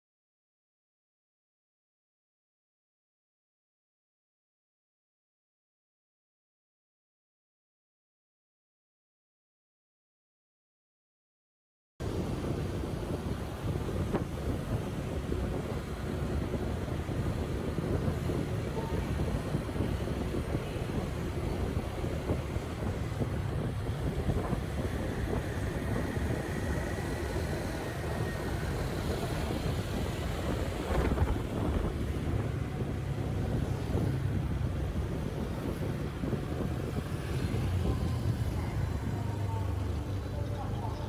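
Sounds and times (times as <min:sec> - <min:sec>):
rumble of passing vehicles: 0:12.0 - 0:41.0
wind buffeting microphone: 0:12.0 - 0:41.0.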